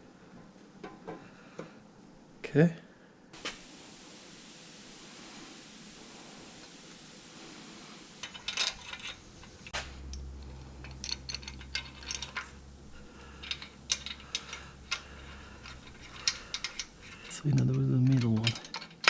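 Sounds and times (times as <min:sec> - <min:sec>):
metal engine parts clinking: 0:08.2 - 0:19.0.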